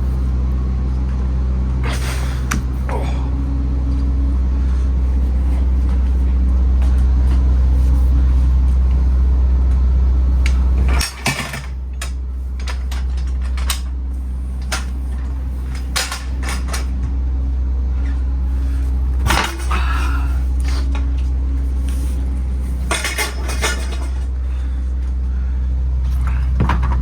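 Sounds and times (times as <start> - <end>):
low machine hum: 0.0 - 27.0
metallic clanks and knocks: 10.4 - 13.9, 22.8 - 24.3.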